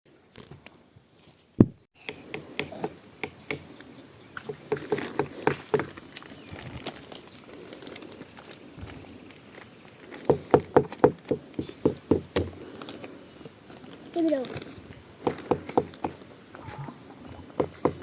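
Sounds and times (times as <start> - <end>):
crickets chirping: 0.1 - 18.0
loud thump: 1.6 - 1.8
scattered knocks and clicks: 4.4 - 6.0, 10.1 - 12.6, 14.5 - 16.2, 17.5 - 18.0.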